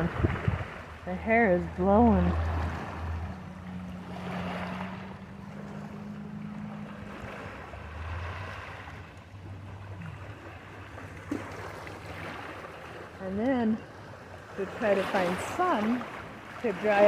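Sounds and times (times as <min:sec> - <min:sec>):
wind gusting on microphone: 0:00.0 - 0:05.4
water lapping at shore: 0:00.0 - 0:17.0.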